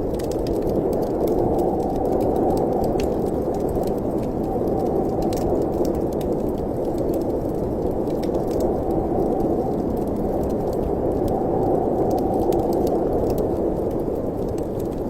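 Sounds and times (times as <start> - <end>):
fire crackles and pops: 0.0 - 15.0.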